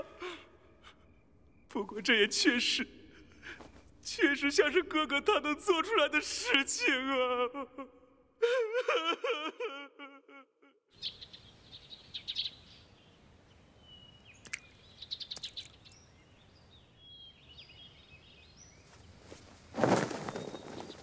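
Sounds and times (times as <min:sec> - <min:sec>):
small birds chirping: 0:10.9 - 0:21.0.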